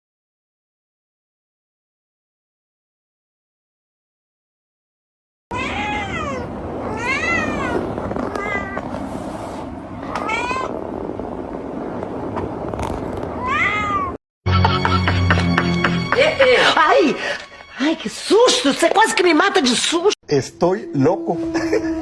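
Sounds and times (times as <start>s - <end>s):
cat meowing: 5.5s - 9.0s, 10.0s - 10.8s, 13.4s - 14.2s.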